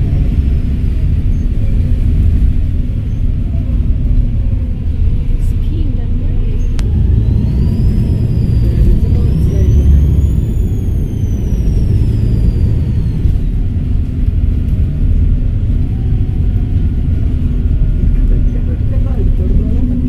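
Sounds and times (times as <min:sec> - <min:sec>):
diesel engine rumbling: 0:00.0 - 0:20.0
turbocharger whistle: 0:06.8 - 0:13.7.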